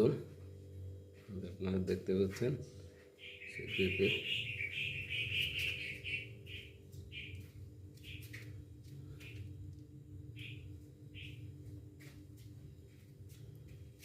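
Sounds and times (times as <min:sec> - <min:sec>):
faint low hum: 0:00.0 - 0:14.0
bird chirping: 0:03.2 - 0:08.5, 0:10.4 - 0:11.5.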